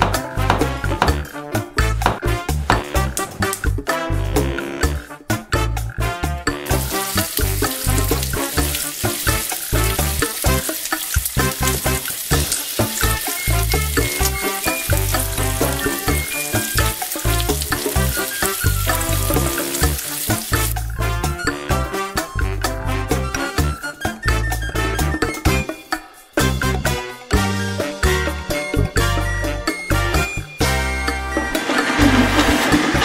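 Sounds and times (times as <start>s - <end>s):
background music with steady beat: 0.0s - 32.2s
vegetables sizzling in hot oil: 6.7s - 20.8s.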